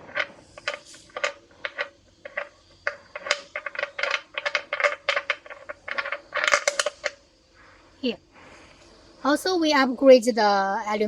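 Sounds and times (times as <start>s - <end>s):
metallic clicking and clinking: 0.0s - 7.2s.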